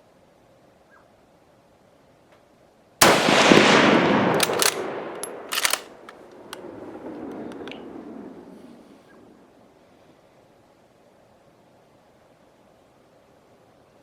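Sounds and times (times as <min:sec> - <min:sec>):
rifle shot: 0:03.0 - 0:08.8
sharp clicks: 0:04.2 - 0:07.9.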